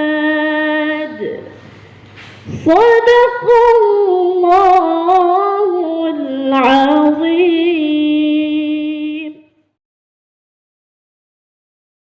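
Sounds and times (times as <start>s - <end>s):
child chanting recitation: 0.0s - 1.5s, 2.5s - 9.6s.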